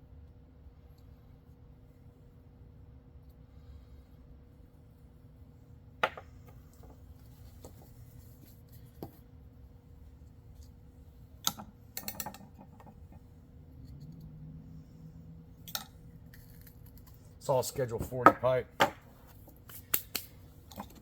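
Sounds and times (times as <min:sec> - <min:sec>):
faint steady hum: 0:00.0 - 0:21.0
plastic pipe clicks and knocks: 0:06.0 - 0:06.3.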